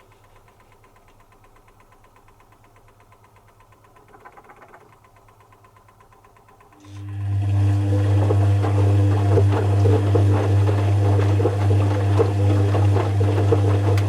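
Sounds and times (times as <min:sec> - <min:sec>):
fast even ticking: 0:00.0 - 0:06.8
washing machine humming: 0:00.0 - 0:14.0.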